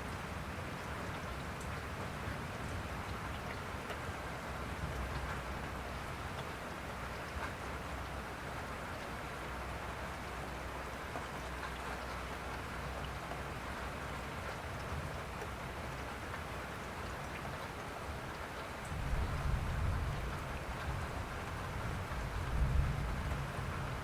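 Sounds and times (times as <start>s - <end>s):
steady rain falling: 0.0s - 24.0s
low rumble of thunder: 18.8s - 24.0s.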